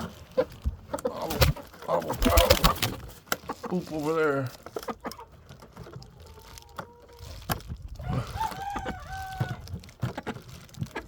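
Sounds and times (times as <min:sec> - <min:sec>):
rooster crowing: 0:08.0 - 0:09.6.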